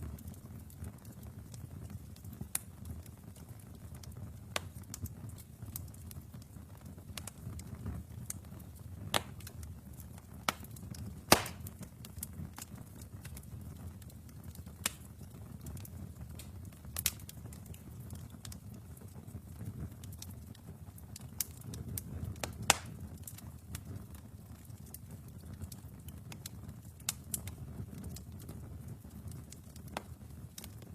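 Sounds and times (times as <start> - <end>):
fire pops and snaps: 0.0 - 30.9
low rumble of flames: 0.0 - 30.9.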